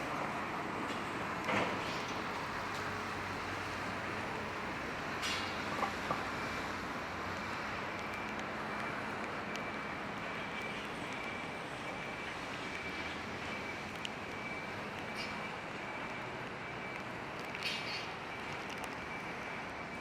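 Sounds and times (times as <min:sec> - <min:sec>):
rain: 0:00.0 - 0:20.0
traffic hiss: 0:00.0 - 0:20.0
small ticks: 0:07.9 - 0:12.0, 0:13.9 - 0:15.9, 0:16.9 - 0:19.0.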